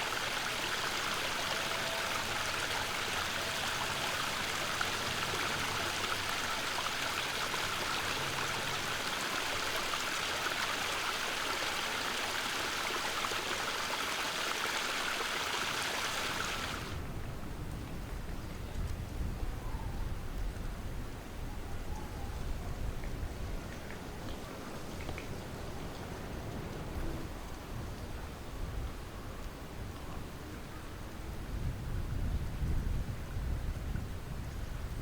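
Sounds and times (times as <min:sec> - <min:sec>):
stream rushing: 0:00.0 - 0:17.0.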